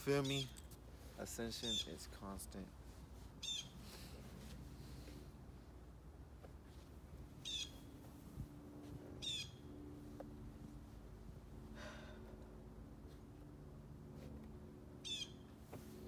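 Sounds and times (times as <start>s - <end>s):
steady low hum: 0.0s - 16.0s
bird calling: 0.1s - 0.7s, 1.6s - 2.2s, 3.4s - 4.0s, 7.4s - 7.9s, 9.2s - 9.6s, 15.0s - 15.4s.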